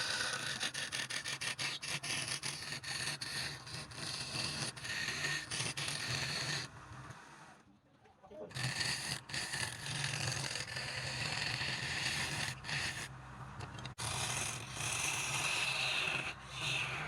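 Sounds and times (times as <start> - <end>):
turning tool scraping wood: 1.7 - 6.7.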